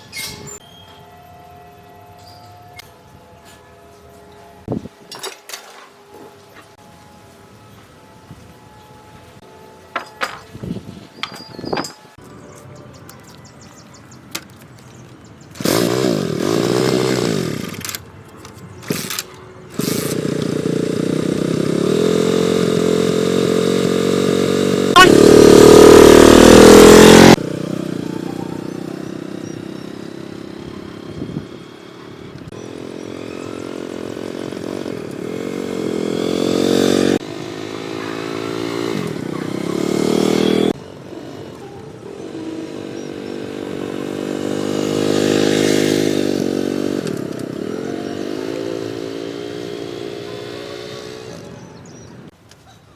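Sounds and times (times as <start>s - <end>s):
motorcycle engine revving: 15.4s - 18.0s, 18.8s - 52.3s.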